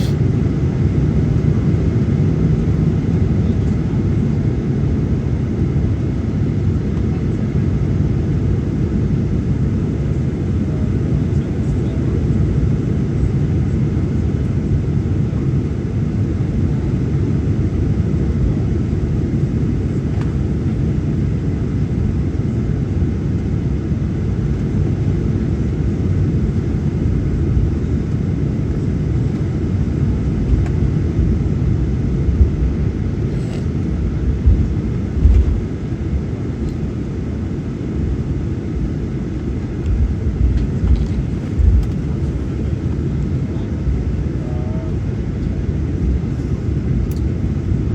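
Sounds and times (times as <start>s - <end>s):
aircraft cabin engine rumble: 0.0s - 47.9s.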